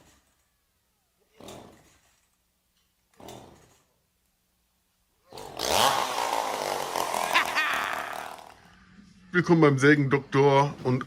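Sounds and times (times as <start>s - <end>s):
chainsaw engine starting and revving: 3.1s - 3.9s, 5.2s - 8.7s.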